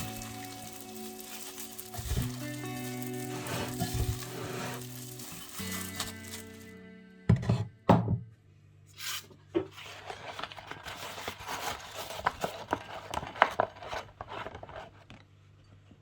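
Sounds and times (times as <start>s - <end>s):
food rubbing and rustling: 0.0s - 6.7s, 9.0s - 15.0s.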